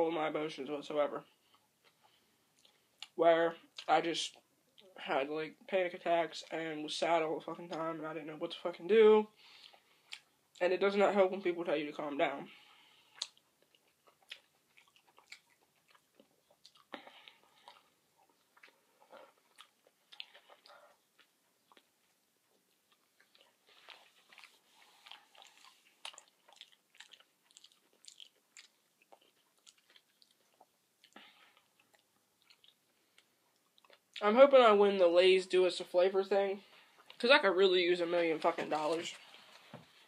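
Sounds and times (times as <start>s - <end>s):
person chewing a sandwich: 1.3s - 4.9s, 9.4s - 10.6s, 12.5s - 34.2s.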